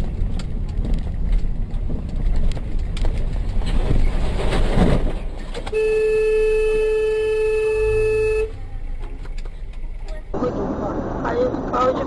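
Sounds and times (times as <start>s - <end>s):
road and engine noise: 0.0s - 12.0s
vehicle horn blast: 5.7s - 8.6s.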